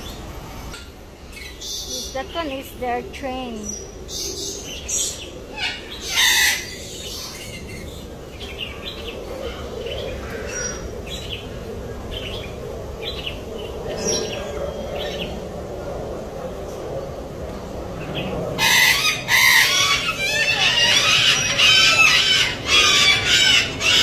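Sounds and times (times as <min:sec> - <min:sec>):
parrot squawking: 0:18.6 - 0:24.0
parrots chirping: 0:18.6 - 0:24.0.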